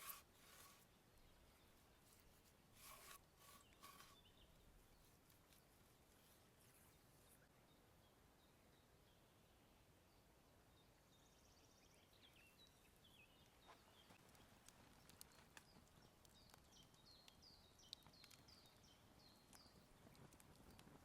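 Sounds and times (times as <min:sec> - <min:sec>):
bird chirping: 0:10.8 - 0:21.0
light taps and clicks: 0:13.4 - 0:21.0.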